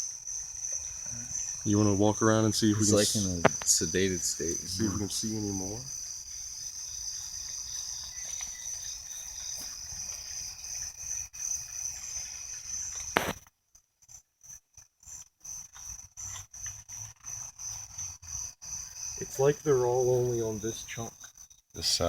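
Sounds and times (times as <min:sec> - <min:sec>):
insects trilling: 0:00.0 - 0:22.0
sharp knock: 0:13.2 - 0:13.4.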